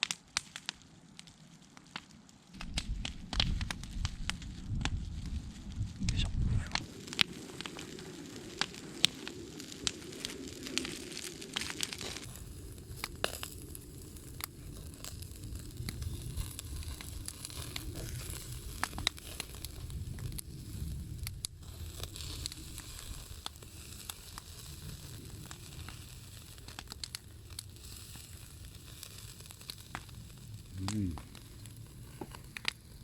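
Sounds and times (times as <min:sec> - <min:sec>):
campfire crackling and popping: 0:00.0 - 0:33.0
meat sizzling: 0:06.7 - 0:33.0.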